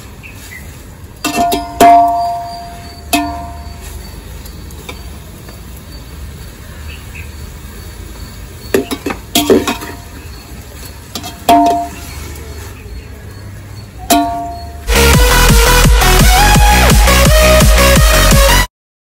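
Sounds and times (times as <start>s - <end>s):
metal utensils clanking on pot: 1.2s - 4.0s, 8.7s - 12.7s, 14.0s - 14.9s.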